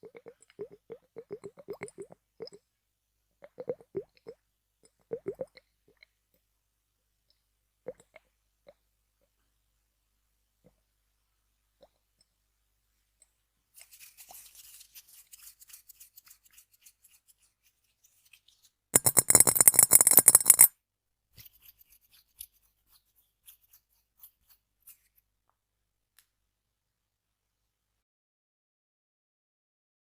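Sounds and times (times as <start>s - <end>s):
tapping on object: 19.0s - 20.7s.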